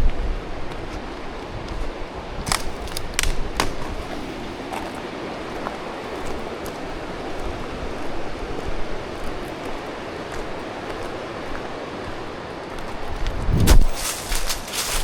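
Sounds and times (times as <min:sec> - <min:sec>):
steady rushing noise: 0:00.0 - 0:15.0
sharp crunches and clicks: 0:02.4 - 0:04.0.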